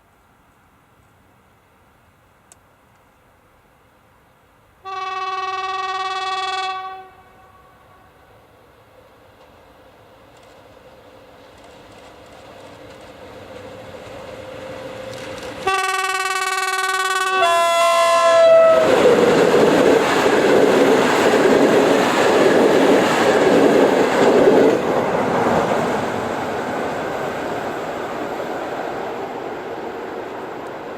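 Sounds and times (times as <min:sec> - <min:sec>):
train passing on rails: 0:04.4 - 0:30.9
two-tone locomotive horn: 0:04.8 - 0:08.3, 0:15.6 - 0:19.0.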